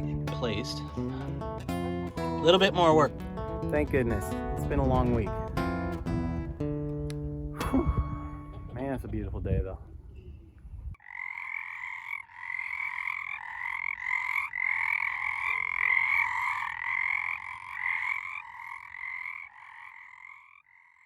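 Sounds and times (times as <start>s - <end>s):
frogs croaking chorus: 10.9s - 21.0s.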